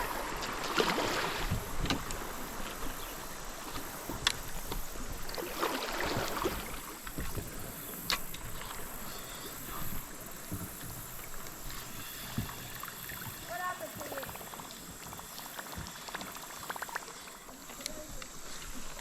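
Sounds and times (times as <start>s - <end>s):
soft splash: 0.0s - 2.0s, 5.3s - 7.4s
water lapping around hull: 0.0s - 19.0s.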